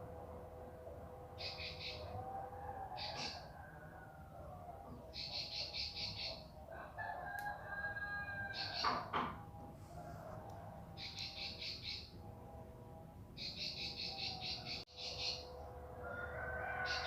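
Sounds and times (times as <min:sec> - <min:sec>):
bird singing rapid trills: 0:01.4 - 0:02.2, 0:05.0 - 0:06.5, 0:11.0 - 0:12.2, 0:13.4 - 0:15.6
rooster crowing: 0:01.5 - 0:05.0, 0:06.6 - 0:11.1, 0:14.2 - 0:17.0.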